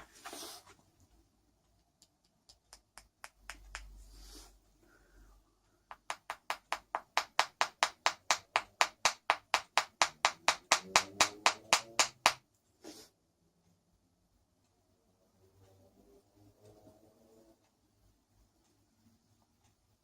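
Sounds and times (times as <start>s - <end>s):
rapid taps on wood: 5.9s - 12.4s.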